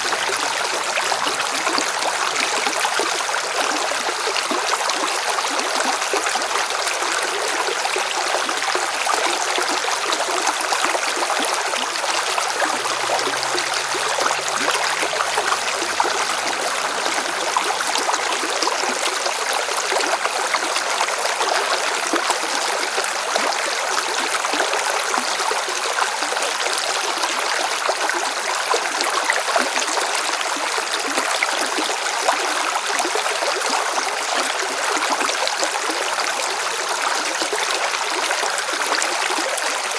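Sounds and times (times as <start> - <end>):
river water rushing over rocks: 8.1 - 32.4.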